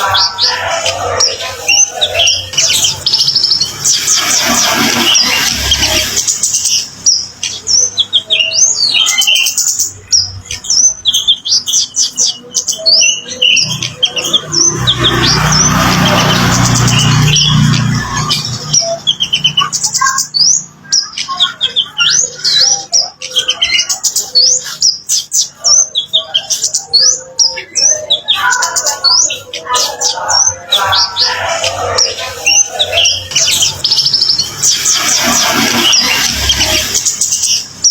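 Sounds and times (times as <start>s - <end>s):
rushing noise: 0.0s - 7.4s, 14.1s - 18.9s, 30.3s - 37.9s
songbird singing: 0.0s - 37.9s.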